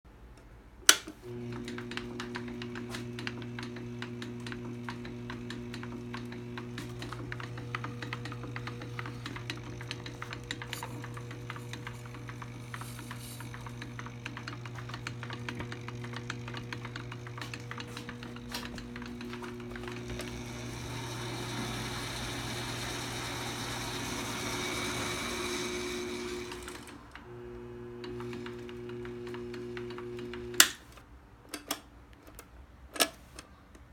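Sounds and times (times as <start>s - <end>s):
hissing whir: 1.2s - 30.6s
electric motor hum: 1.2s - 30.8s
gear clicking and rattling: 1.3s - 27.0s.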